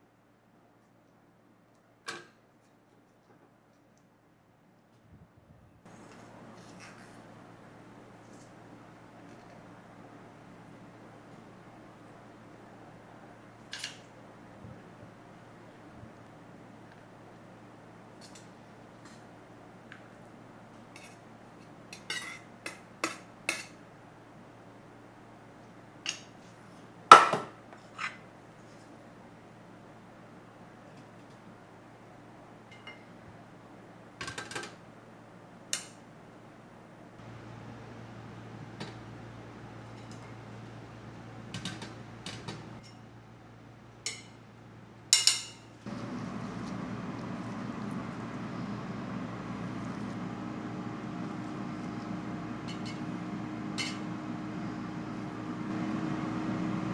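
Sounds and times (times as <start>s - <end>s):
kitchenware clinking: 22.0s - 23.8s, 27.1s - 28.2s, 45.2s - 45.7s
steady low hum: 45.8s - 56.9s.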